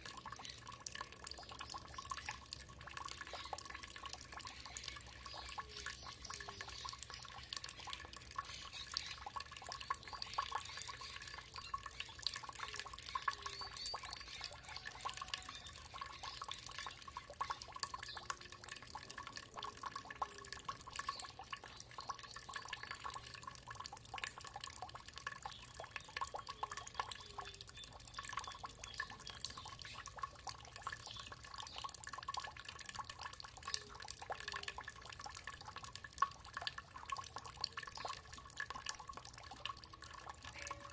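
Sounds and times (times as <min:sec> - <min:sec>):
water trickling and dripping: 0:00.0 - 0:40.9.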